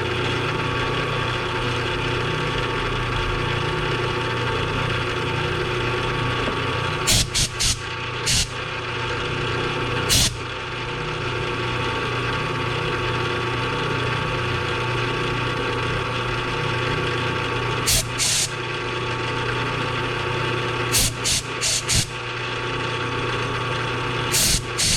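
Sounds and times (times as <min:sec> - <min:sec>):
machine motor humming and whining: 0:00.0 - 0:24.9
loud hissing bursts: 0:07.1 - 0:08.6, 0:10.1 - 0:10.4, 0:17.9 - 0:18.6, 0:20.9 - 0:22.1, 0:24.3 - 0:24.9.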